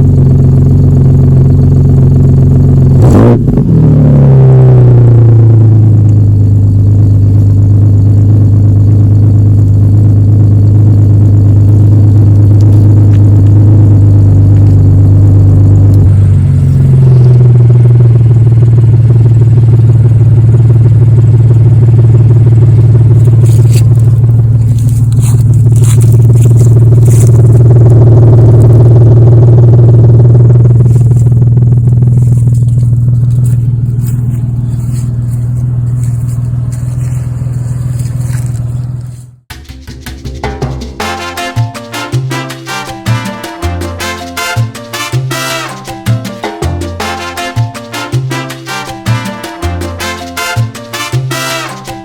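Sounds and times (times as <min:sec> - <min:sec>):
truck engine exhaust drone: 0:00.0 - 0:52.0.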